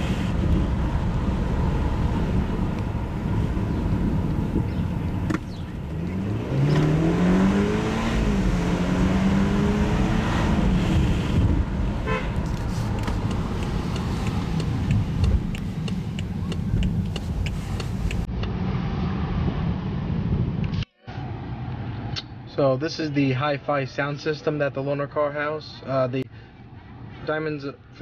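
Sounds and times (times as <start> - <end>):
car engine accelerating: 0.0 - 18.3
road noise rumble: 0.0 - 22.5.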